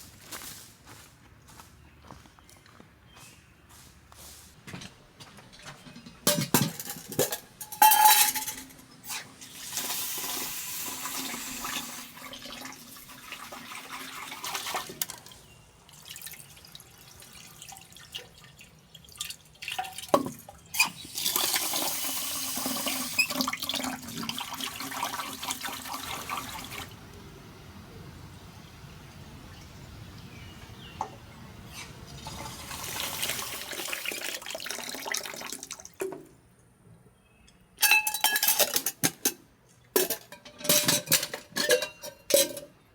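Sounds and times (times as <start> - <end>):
water pouring: 9.4 - 27.7, 31.0 - 36.2.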